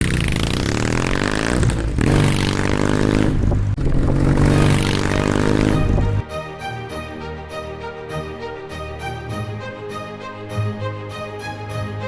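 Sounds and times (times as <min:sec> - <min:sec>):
motorcycle engine revving: 0:00.0 - 0:06.2.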